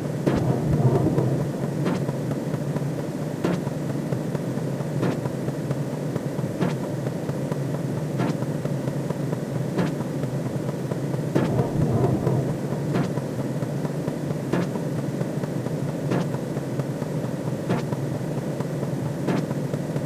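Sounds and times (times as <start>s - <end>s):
low rumbling drone: 0.0s - 3.4s, 11.3s - 14.1s.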